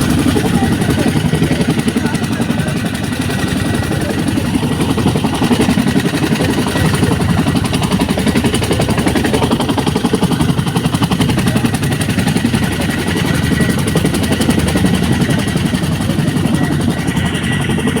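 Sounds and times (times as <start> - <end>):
helicopter rotor beating: 0.0 - 18.0.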